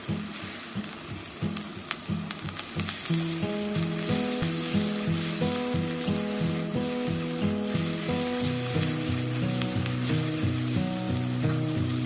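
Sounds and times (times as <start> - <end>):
background music with steady beat: 0.0 - 12.0
eggs sizzling in a hot pan: 0.0 - 12.0
metal spoon stirring and scraping: 3.5 - 12.0.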